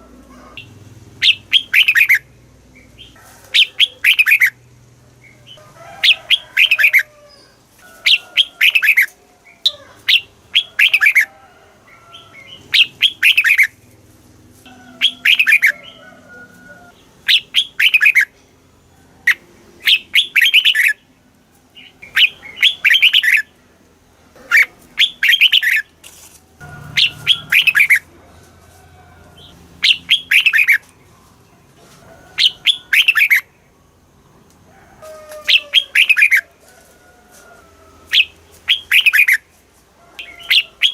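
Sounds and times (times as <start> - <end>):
bird singing whistled notes: 1.2 - 2.2, 3.6 - 4.6, 12.8 - 13.7, 17.3 - 18.3, 19.3 - 21.0, 22.0 - 23.5, 26.9 - 28.0, 29.8 - 30.8, 32.4 - 33.4, 38.2 - 39.4.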